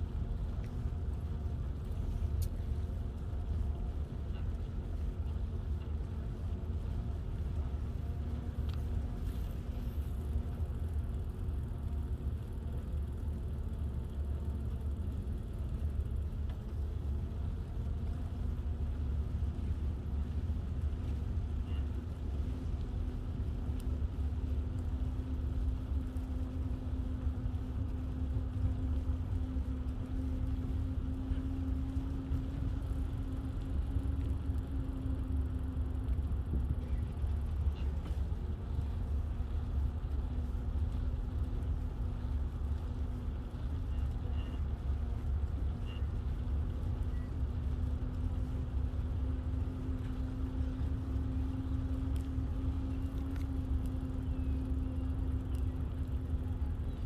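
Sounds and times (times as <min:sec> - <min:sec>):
bicycle rolling noise: 0:00.0 - 0:57.0
steady hum: 0:00.0 - 0:57.0
wind rumble: 0:00.0 - 0:57.0.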